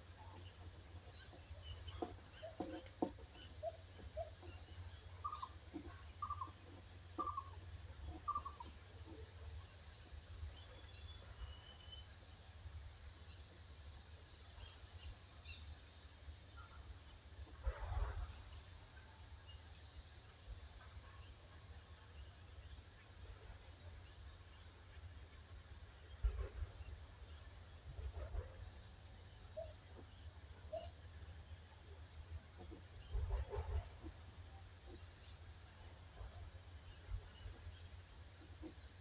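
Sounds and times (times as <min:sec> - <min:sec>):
high insect-like hiss: 0:00.0 - 0:39.0
bird chirps: 0:01.2 - 0:09.2.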